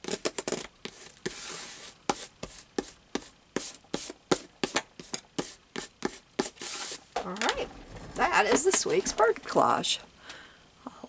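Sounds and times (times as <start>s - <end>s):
paper rubbing: 6.0s - 9.4s.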